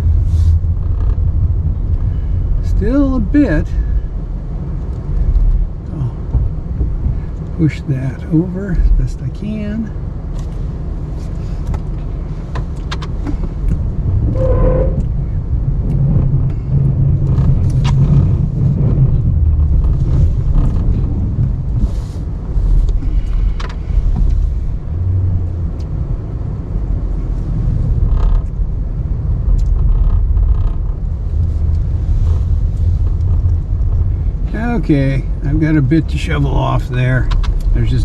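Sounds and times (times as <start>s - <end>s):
pickup truck engine rumbling: 0.0s - 38.0s
creaks and clicks: 0.7s - 2.1s, 11.6s - 15.2s, 15.8s - 21.9s, 28.0s - 28.6s, 29.4s - 34.4s, 37.2s - 37.8s.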